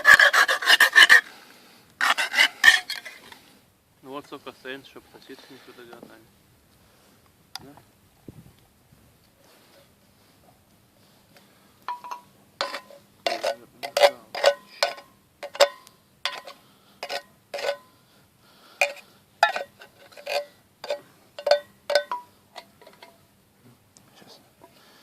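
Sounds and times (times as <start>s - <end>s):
metal cookware clinking: 11.9s - 16.5s, 20.3s - 23.1s.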